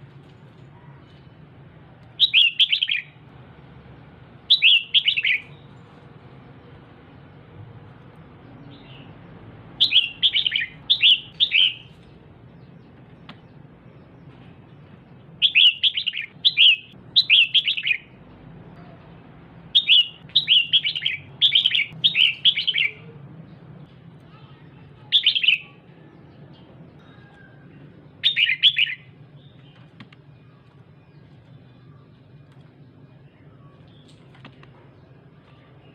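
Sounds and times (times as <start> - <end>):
bird chattering calls: 9.8 - 11.9, 19.8 - 23.0.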